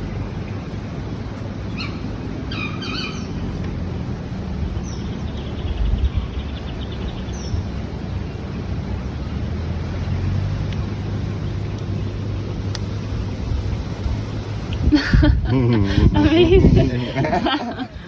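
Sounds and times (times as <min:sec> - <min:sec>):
low outdoor rumble: 0:00.0 - 0:18.0
bird chirps: 0:01.7 - 0:03.5.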